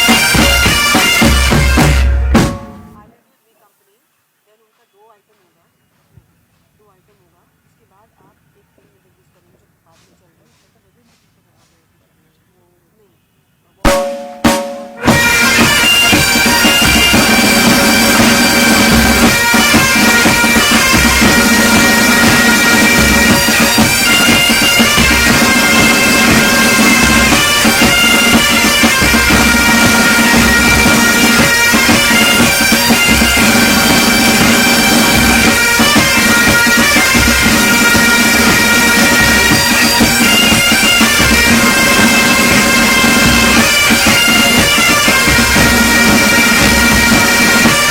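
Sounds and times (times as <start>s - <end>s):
bagpipes playing: 0.0s - 3.1s, 13.9s - 47.9s
drums beating: 0.0s - 3.2s, 13.8s - 47.9s.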